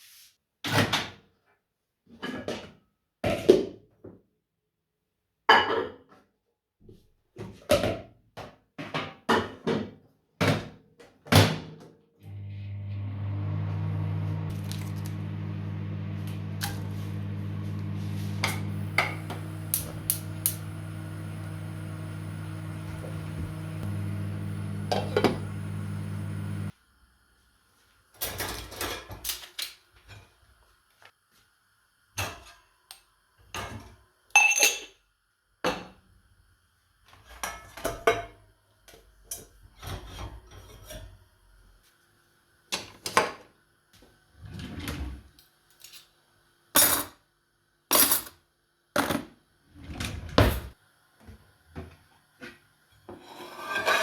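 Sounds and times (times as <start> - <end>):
kitchen appliance humming: 12.2 - 26.7.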